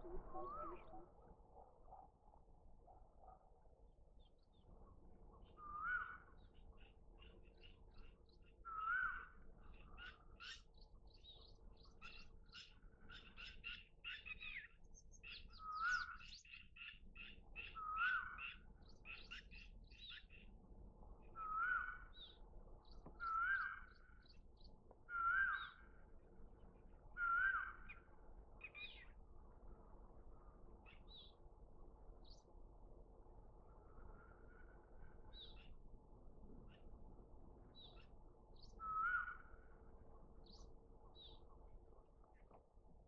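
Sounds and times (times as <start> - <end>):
chorus of high bird chirps: 0.0 - 1.1.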